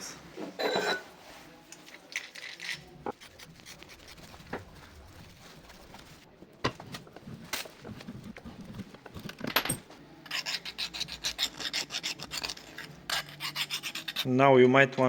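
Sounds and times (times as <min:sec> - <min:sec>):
scratchy metal rub: 0:10.2 - 0:14.3.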